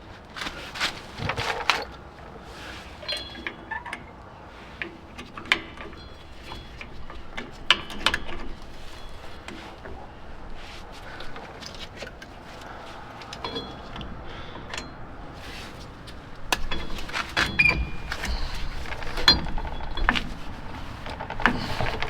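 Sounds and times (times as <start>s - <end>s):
metal tools clinking: 2.6s - 22.0s.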